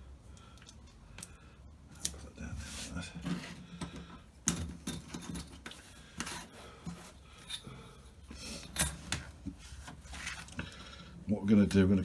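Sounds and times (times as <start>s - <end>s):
hands rubbing and rustling tape: 0.6s - 7.7s, 8.3s - 10.9s.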